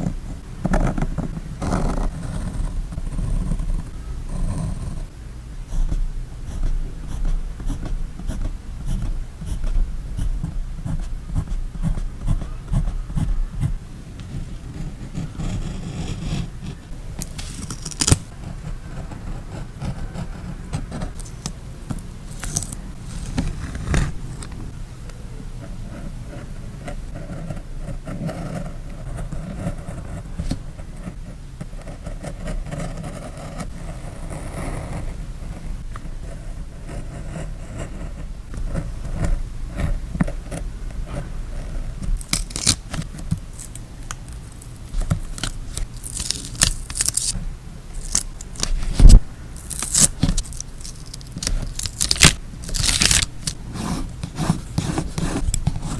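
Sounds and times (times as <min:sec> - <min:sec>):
paper rustling and scraping: 0:17.0 - 0:18.4, 0:21.0 - 0:24.7, 0:42.0 - 0:55.9.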